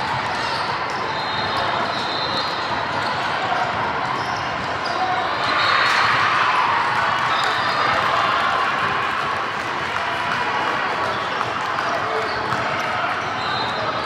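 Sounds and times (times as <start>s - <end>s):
crowd chatter: 0.0s - 14.0s.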